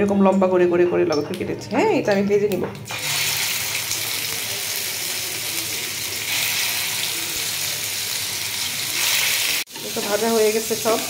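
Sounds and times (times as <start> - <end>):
chicken sizzling in hot oil: 2.9 - 11.0.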